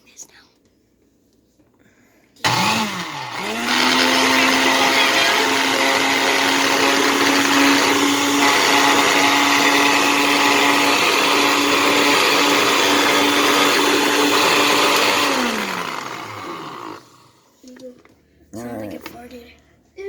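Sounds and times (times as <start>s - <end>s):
electric blender motor running: 2.4s - 17.4s.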